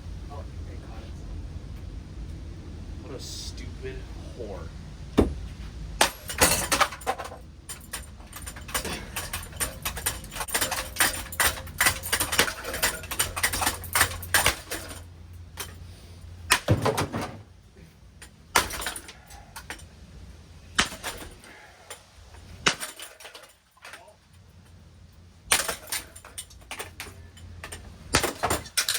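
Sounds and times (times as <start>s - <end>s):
hard knocks: 5.2s - 15.0s, 16.5s - 17.5s
metal parts clattering and rattling: 6.0s - 28.9s.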